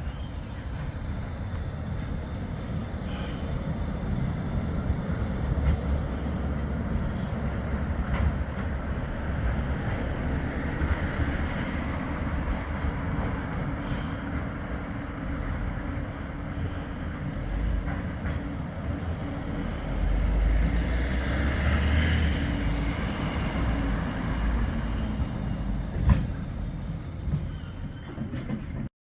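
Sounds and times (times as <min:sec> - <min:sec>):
large vehicle rumbling past: 0:19.4 - 0:27.6.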